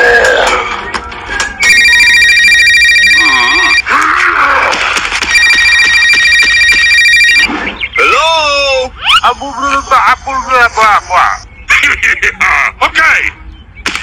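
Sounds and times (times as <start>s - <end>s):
telephone electronic ringtone: 1.6s - 3.8s, 5.3s - 7.5s.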